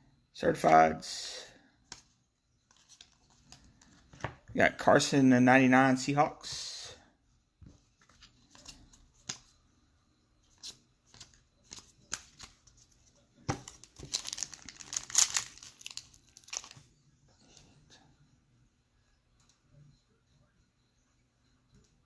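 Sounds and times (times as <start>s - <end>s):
wrapper crinkling and clicking: 13.6s - 16.8s
wrapper tearing: 14.0s - 16.8s.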